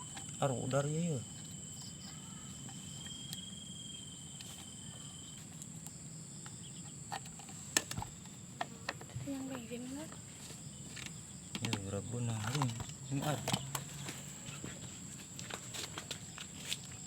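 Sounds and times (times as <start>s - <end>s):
insects chirring: 0.0s - 17.0s
lower insect tone: 0.0s - 17.0s.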